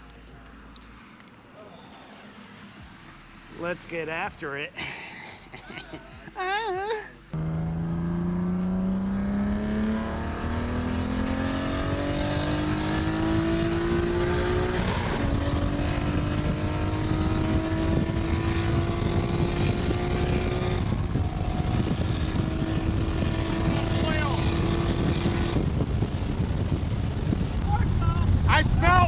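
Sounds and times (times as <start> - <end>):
road and wind noise: 0.0 - 6.5, 7.2 - 29.0
car engine accelerating: 7.3 - 29.0.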